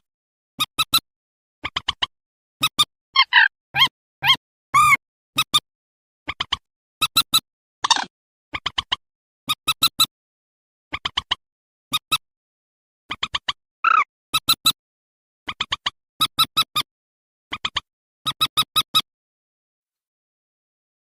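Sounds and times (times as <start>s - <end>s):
bird calls in short sharp bursts: 13.8s - 14.1s.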